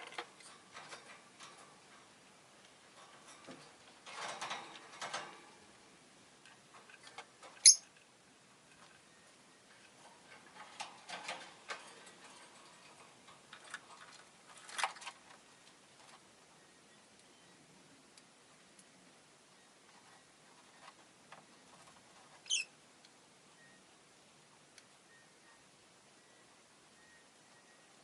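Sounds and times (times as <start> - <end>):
small clicks and rustles: 0.0 - 5.6, 6.4 - 16.3, 19.8 - 23.2
bird chirp: 7.6 - 7.9, 16.6 - 17.7, 22.4 - 22.7.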